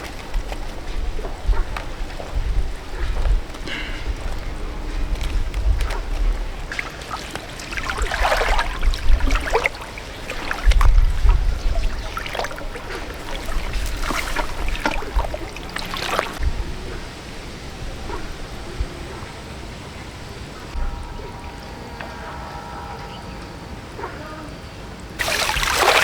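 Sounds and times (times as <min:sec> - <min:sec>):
water splashing and sloshing: 0:00.0 - 0:21.1, 0:25.2 - 0:26.0
wind rumbling on microphone: 0:00.0 - 0:22.0.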